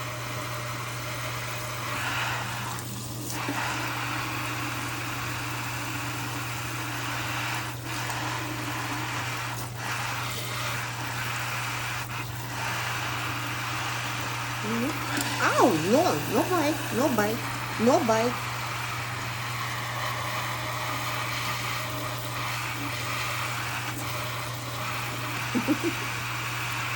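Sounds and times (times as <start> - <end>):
tap water running into sink: 0.0 - 15.4, 16.2 - 26.9.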